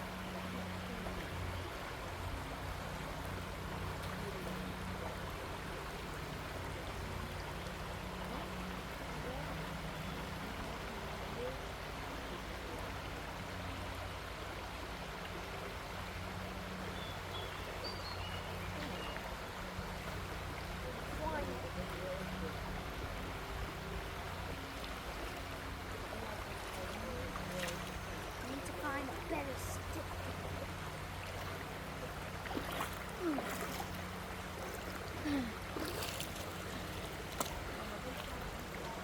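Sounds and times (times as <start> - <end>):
creek water running: 0.0 - 39.0
faint high bird chirps: 16.9 - 19.2.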